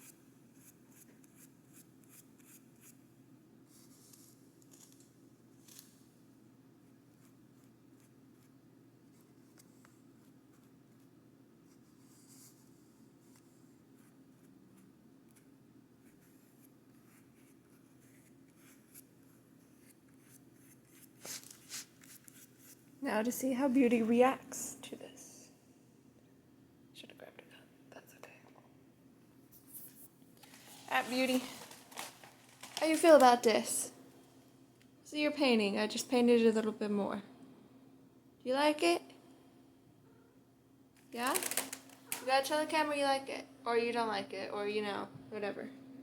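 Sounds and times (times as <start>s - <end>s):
paint strokes on paper: 0.0s - 3.0s, 3.6s - 4.5s, 6.8s - 22.9s, 29.5s - 31.8s
low room hum: 0.0s - 46.0s.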